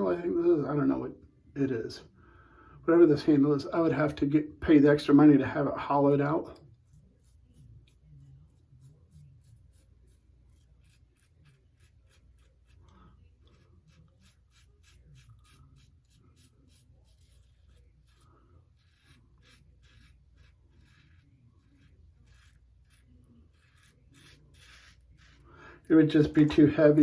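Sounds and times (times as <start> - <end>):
razor scraping stubble: 6.1 - 27.0.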